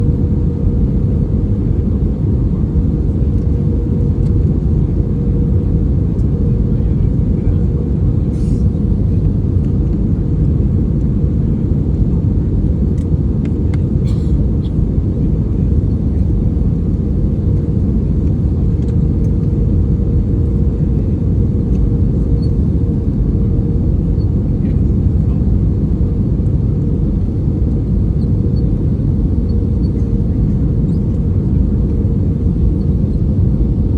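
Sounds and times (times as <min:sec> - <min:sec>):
jet cabin rumble: 0:00.0 - 0:33.9.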